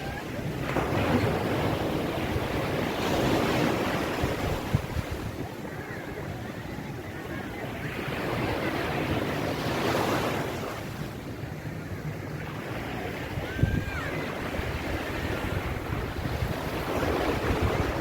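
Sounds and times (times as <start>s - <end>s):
wind rumbling on microphone: 0.0s - 6.6s, 12.8s - 18.0s
ocean waves washing onto beach: 0.0s - 18.0s.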